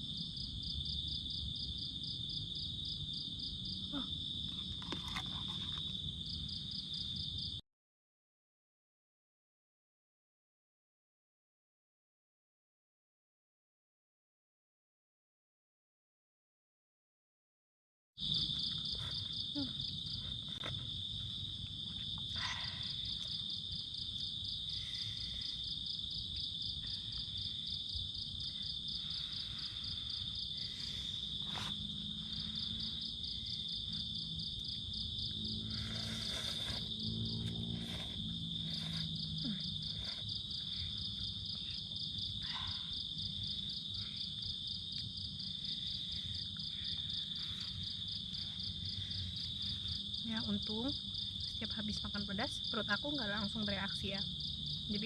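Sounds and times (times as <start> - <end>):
forest insects trilling: 18.2 - 55.0.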